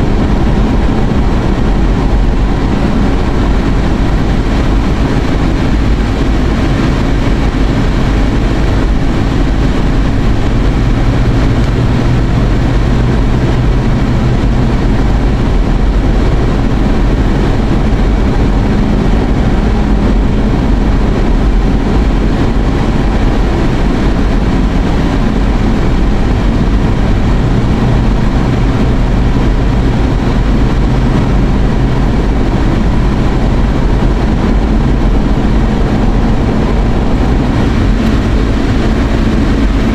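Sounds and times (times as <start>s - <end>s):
road noise inside moving car: 0.0s - 39.9s.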